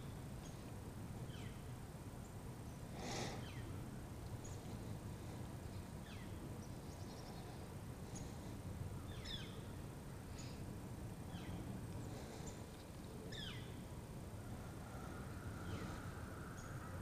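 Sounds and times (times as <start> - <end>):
bird calls: 2.2 - 10.7, 11.3 - 13.8, 14.4 - 17.0.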